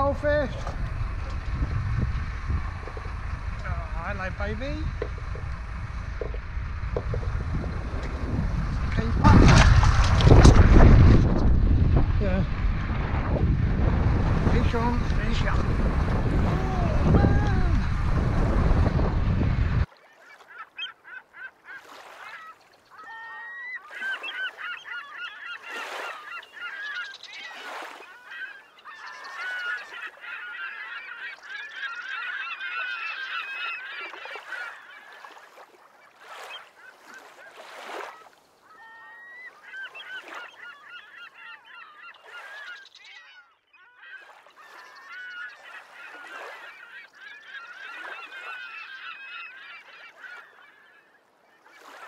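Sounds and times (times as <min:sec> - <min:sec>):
gulls calling: 0:00.0 - 0:52.0.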